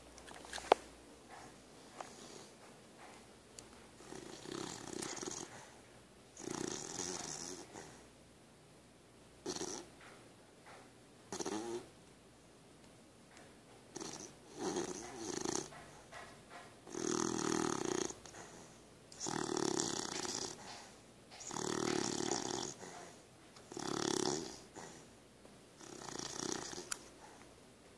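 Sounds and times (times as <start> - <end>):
puppy snoring: 1.3 - 3.2, 4.0 - 8.1, 9.4 - 10.1, 11.3 - 11.9, 13.9 - 25.2, 25.8 - 27.4.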